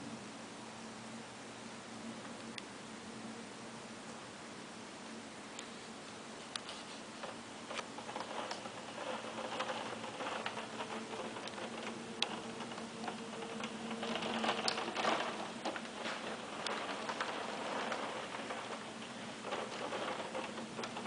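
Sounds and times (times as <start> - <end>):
hailstones striking hard surfaces: 7.2 - 21.0.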